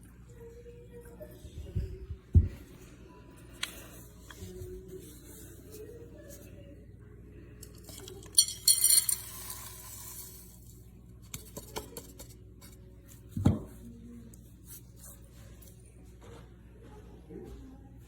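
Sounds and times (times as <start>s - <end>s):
kitchenware clattering: 7.6s - 10.3s
glass clinking: 8.0s - 9.8s.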